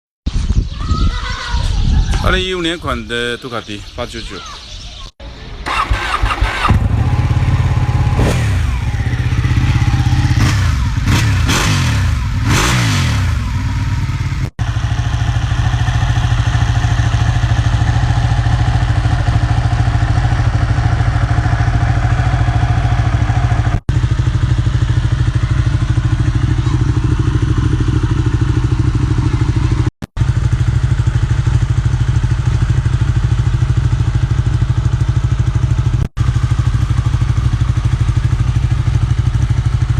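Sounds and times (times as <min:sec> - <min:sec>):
motorcycle engine idling: 0:05.6 - 0:39.9
motorcycle engine revving: 0:05.6 - 0:39.9.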